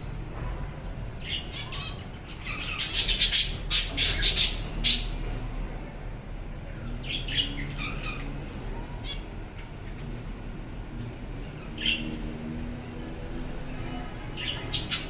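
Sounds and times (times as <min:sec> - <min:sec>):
budgerigars squawking: 0:01.3 - 0:05.2.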